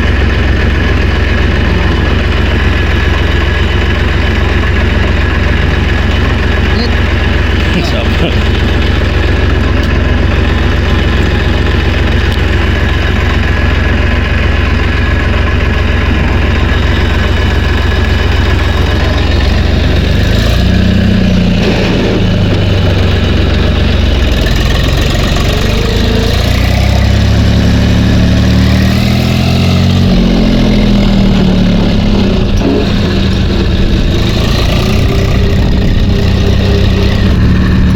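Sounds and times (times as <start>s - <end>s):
tractor engine revving: 0.0s - 37.9s.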